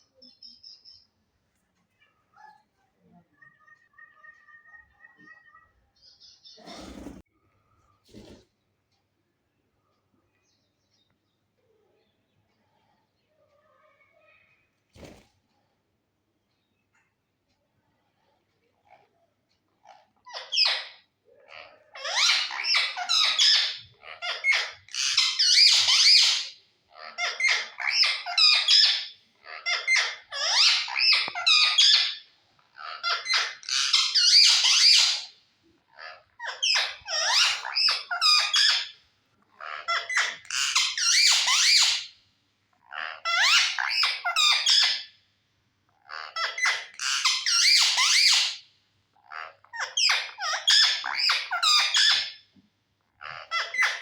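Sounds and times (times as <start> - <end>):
parrot chattering and squeaking: 19.8 - 35.3, 35.9 - 39.0, 39.6 - 42.1, 42.8 - 45.1, 46.0 - 48.6, 49.2 - 52.4, 53.2 - 54.0.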